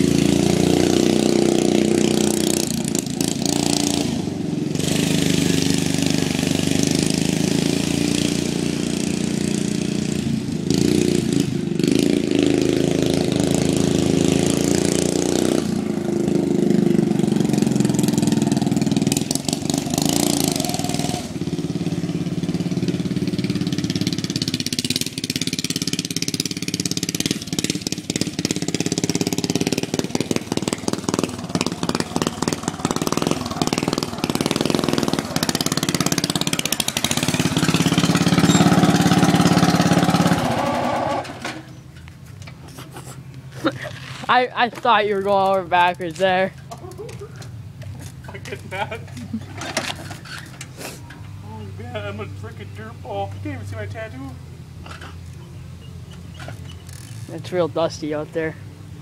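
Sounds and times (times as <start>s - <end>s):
lawn mower engine running: 0.0s - 59.0s.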